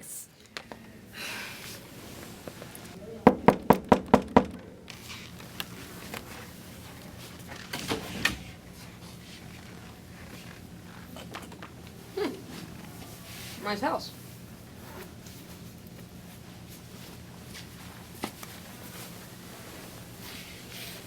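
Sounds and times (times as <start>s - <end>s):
quick knocks on a door: 3.3s - 4.6s.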